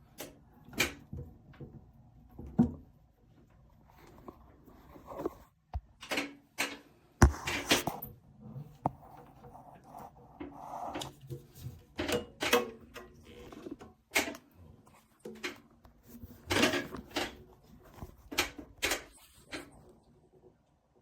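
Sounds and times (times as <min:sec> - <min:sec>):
hard objects knocking and clicking: 0:07.2 - 0:07.9.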